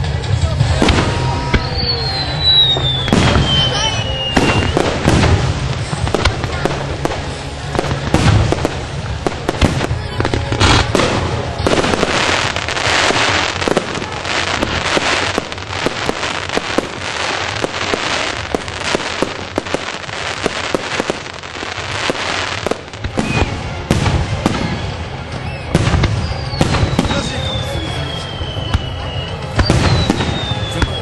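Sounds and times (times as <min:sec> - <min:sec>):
fireworks crackling and popping: 0:00.0 - 0:31.0
heavy low fireworks booms: 0:00.0 - 0:31.0
falling whistle: 0:01.4 - 0:04.8, 0:25.4 - 0:31.0.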